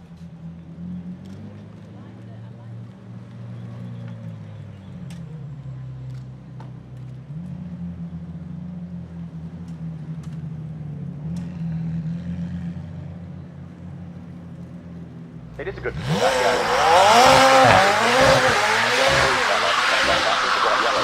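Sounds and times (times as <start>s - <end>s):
car engine running: 14.0s - 21.0s.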